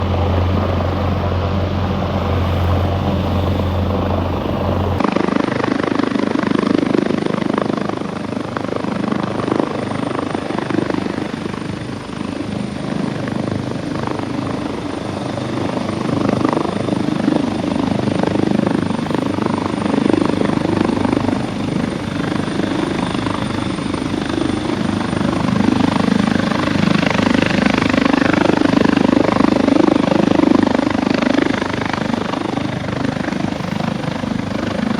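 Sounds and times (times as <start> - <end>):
deep hum: 0.0 - 5.0
helicopter rotor and engine: 0.0 - 34.9.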